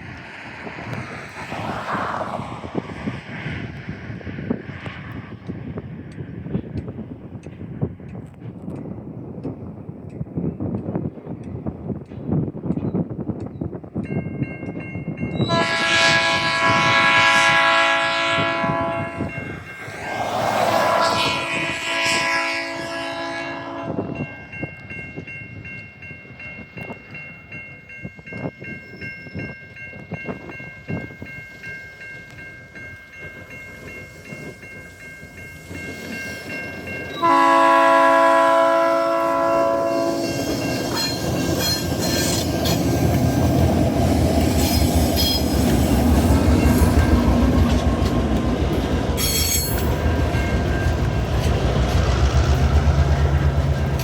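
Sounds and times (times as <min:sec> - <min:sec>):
train rumbling past: 0:00.0 - 0:54.0
locomotive horn: 0:15.4 - 0:24.4, 0:37.1 - 0:42.5
high wheel squeal: 0:40.1 - 0:43.5, 0:49.2 - 0:50.0
wheels clicking on track: 0:40.4 - 0:54.0.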